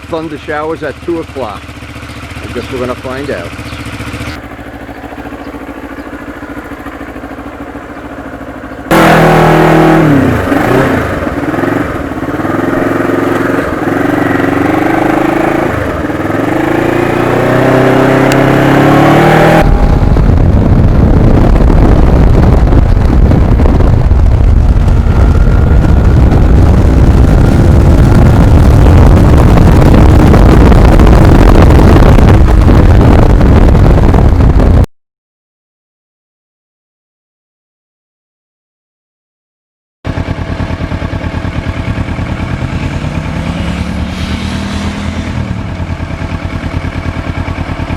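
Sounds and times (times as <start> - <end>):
motorcycle engine revving: 0.0 - 34.9, 40.1 - 47.9
wind rushing: 8.9 - 34.9, 42.0 - 46.9.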